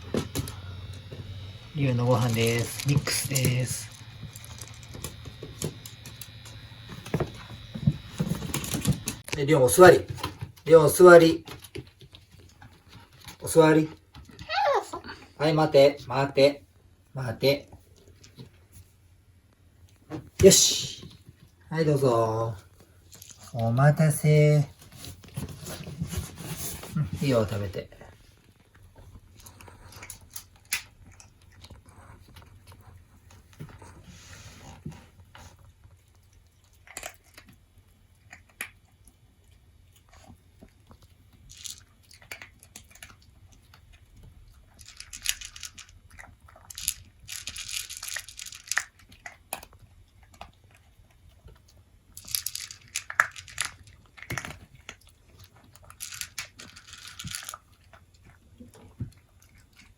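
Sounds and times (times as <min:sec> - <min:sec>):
dog eating from a bowl: 0:00.0 - 0:14.5, 0:20.5 - 0:59.9.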